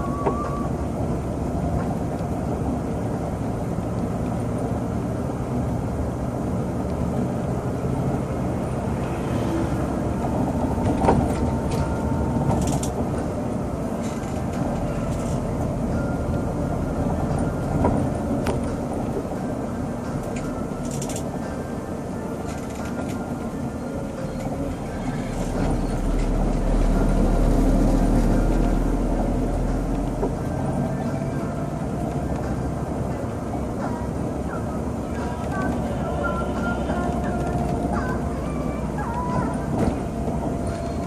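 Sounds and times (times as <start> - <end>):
engine and road rumble: 0.0 - 41.0.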